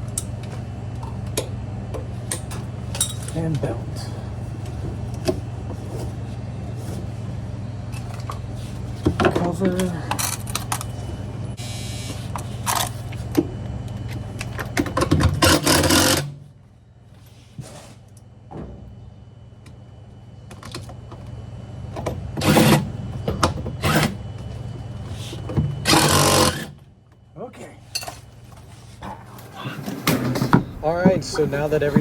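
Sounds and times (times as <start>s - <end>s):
steady low hum: 0.0s - 32.0s
power screwdriver running: 15.5s - 16.3s, 25.8s - 26.7s.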